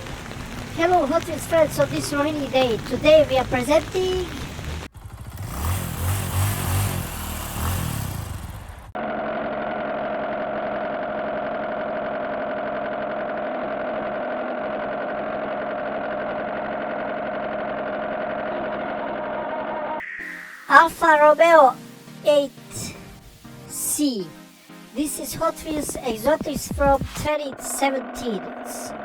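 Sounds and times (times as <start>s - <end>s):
car engine idling: 0.5s - 19.7s
car engine starting and revving: 1.8s - 19.3s.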